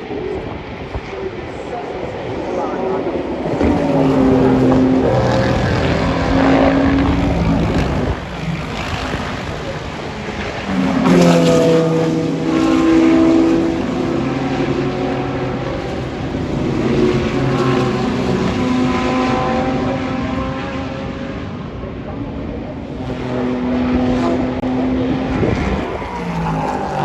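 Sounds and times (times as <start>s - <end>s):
race cars driving past: 0.0s - 27.0s.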